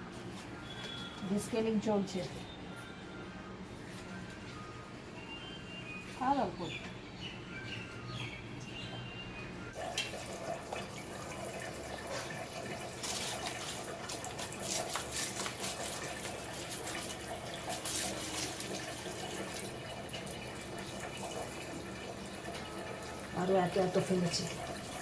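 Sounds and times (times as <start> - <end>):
water running and splashing: 9.8 - 25.0.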